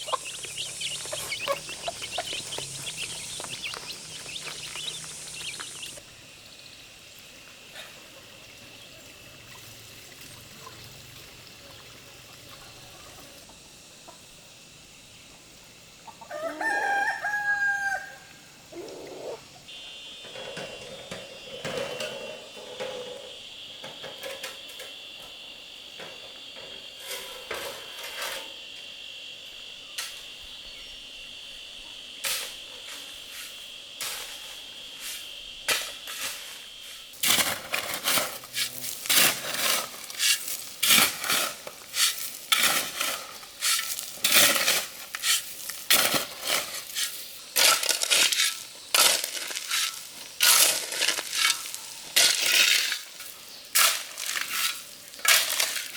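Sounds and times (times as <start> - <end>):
loud irregular crunching: 0.0 - 6.0
high insect drone: 0.0 - 7.7, 12.6 - 40.8.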